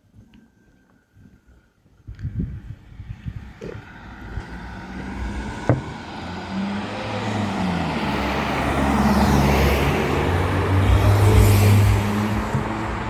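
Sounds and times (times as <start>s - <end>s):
vehicle approaching: 3.0s - 13.0s.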